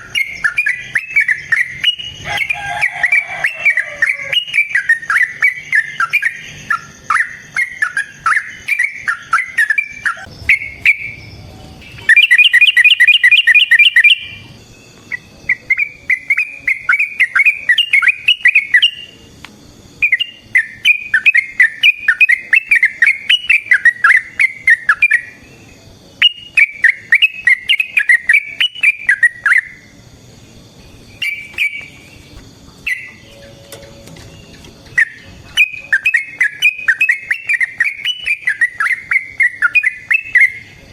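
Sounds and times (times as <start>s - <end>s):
bird singing rapid chattering notes: 0.0s - 40.9s.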